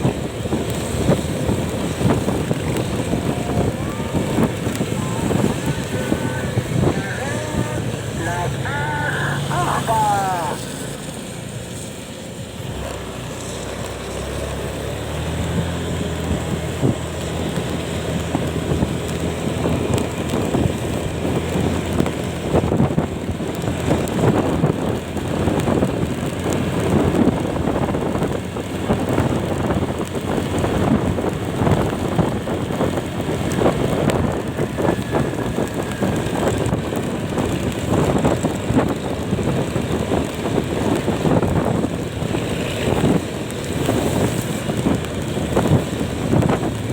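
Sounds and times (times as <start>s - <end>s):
wind buffeting microphone: 0.0s - 9.8s, 13.8s - 46.9s
low engine drone: 1.5s - 11.4s.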